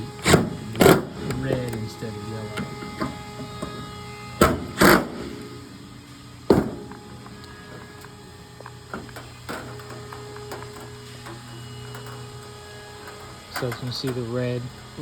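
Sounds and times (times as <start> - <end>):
knocks and clunks from handling parts: 6.5 - 15.0.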